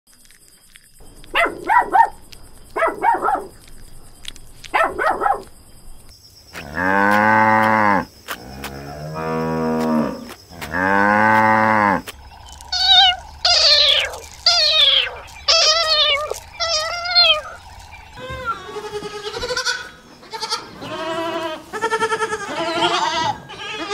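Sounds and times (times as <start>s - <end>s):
cattle mooing: 6.7s - 21.5s
short animal calls: 11.6s - 21.0s
goats bleating: 18.2s - 23.9s.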